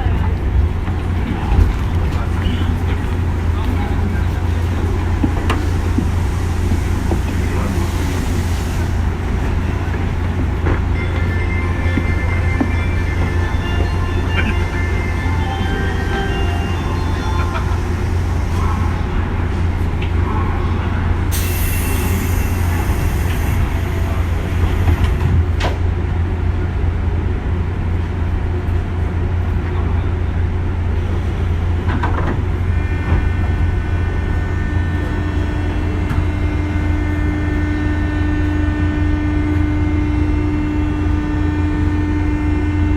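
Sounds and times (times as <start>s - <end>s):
train running on rails: 0.0s - 42.9s.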